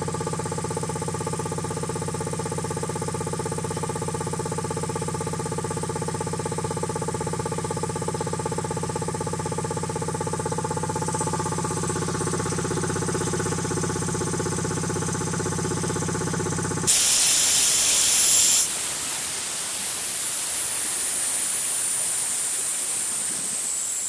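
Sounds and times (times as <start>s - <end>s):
air compressor pumping: 16.9s - 24.0s
compressed air hissing: 16.9s - 24.0s.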